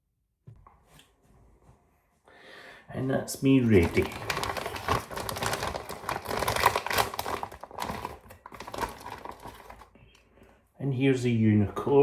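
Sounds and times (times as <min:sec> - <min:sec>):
plastic packaging crinkling: 0:03.6 - 0:10.0.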